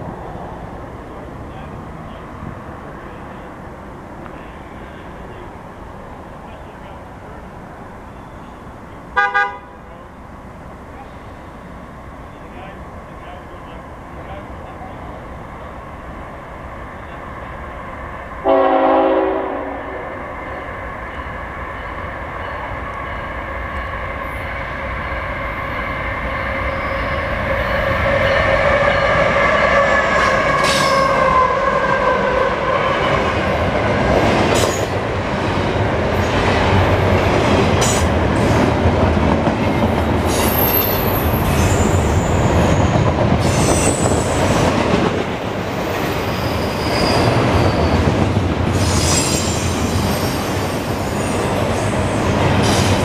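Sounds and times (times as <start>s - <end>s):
diesel locomotives passing: 0.0s - 53.0s
diesel locomotive horn blast: 9.2s - 9.9s, 18.4s - 20.2s
train wheel squeal: 25.4s - 31.6s, 34.6s - 34.9s, 40.2s - 44.6s, 45.6s - 53.0s.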